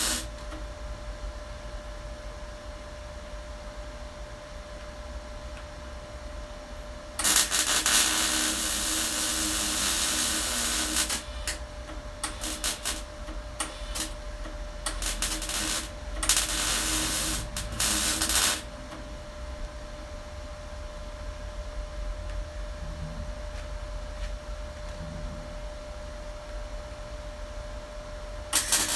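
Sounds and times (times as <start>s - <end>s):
welder arcing: 0.0s - 0.6s, 7.2s - 19.0s, 28.5s - 28.9s.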